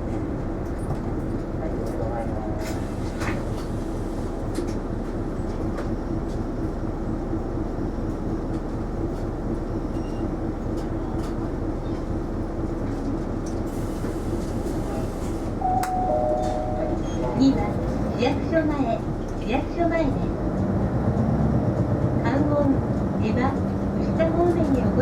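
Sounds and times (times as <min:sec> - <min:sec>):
bus engine and road rumble: 0:00.0 - 0:25.0.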